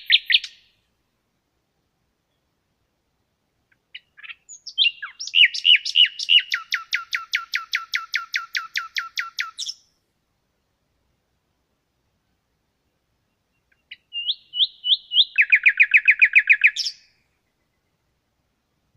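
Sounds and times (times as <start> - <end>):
songbird singing: 0.0 - 18.9.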